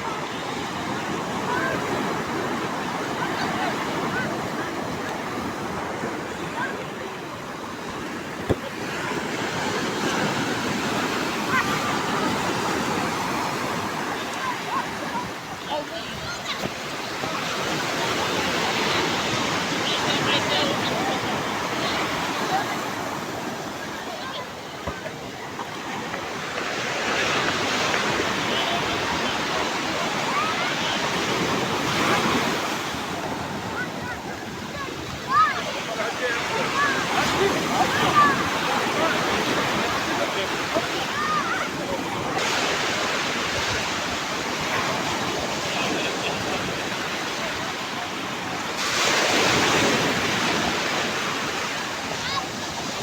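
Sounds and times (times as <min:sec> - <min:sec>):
waves breaking: 0:00.0 - 0:53.0.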